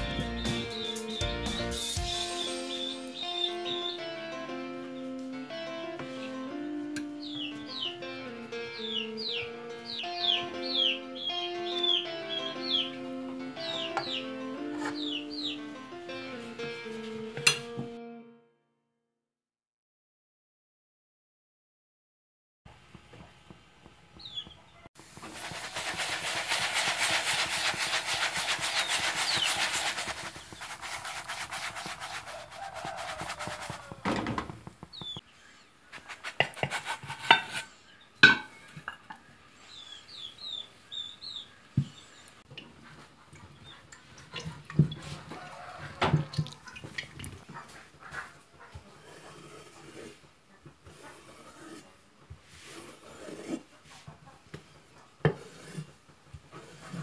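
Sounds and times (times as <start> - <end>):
bird chirps: 0.3 - 4.1, 8.8 - 13.0, 14.9 - 15.6, 28.7 - 30.7, 34.9 - 35.7, 39.6 - 42.3
pastry frying in hot oil: 25.0 - 32.2.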